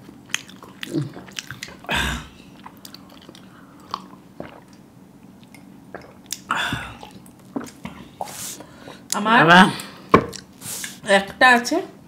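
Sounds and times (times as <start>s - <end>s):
soft chewing: 0.0s - 9.2s.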